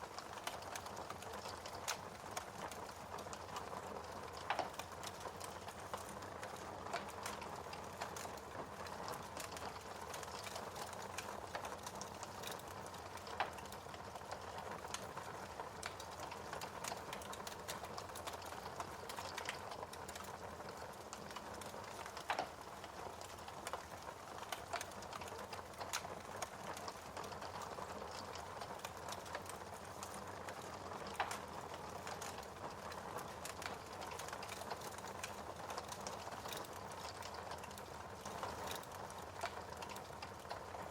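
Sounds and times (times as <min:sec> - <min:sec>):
wood fire crackling: 0:00.0 - 0:40.9
fire pops: 0:21.4 - 0:23.8.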